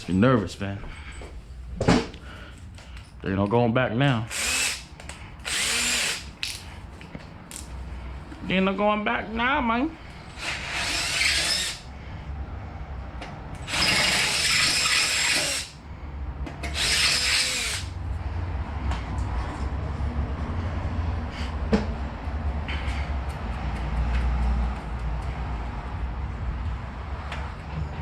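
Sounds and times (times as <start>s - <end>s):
power drill boring into metal: 4.3s - 4.8s, 5.4s - 6.3s, 10.3s - 11.8s, 13.6s - 15.8s, 16.7s - 17.9s.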